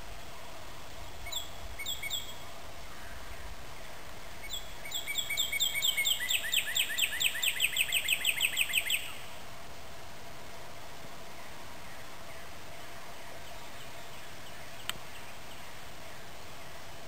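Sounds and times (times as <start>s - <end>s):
bird calling with falling notes: 4.4s - 9.3s.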